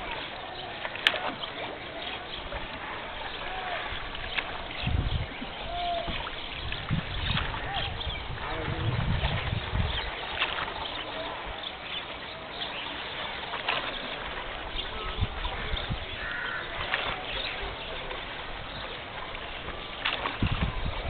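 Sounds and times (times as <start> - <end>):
small water splashes: 0.0 - 21.0
steady river hiss: 0.0 - 21.0.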